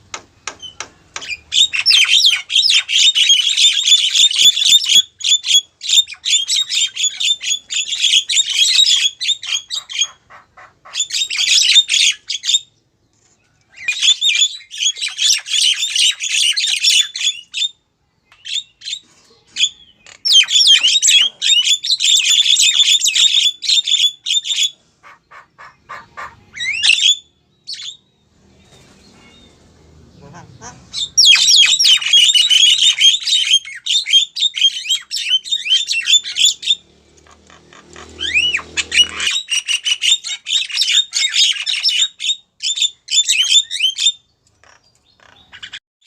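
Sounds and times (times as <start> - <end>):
myna chattering call: 25.0 - 26.9, 29.1 - 32.4, 36.0 - 39.6.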